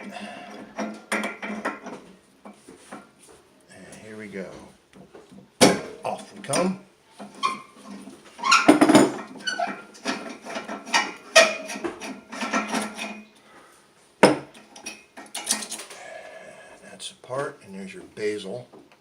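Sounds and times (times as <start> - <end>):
metal valve parts clinking: 14.2 - 16.0.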